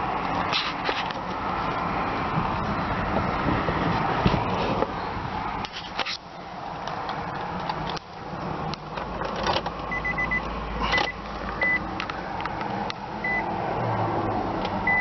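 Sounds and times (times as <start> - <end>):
dashboard warning chime beeping: 9.9 - 11.9, 13.2 - 13.5.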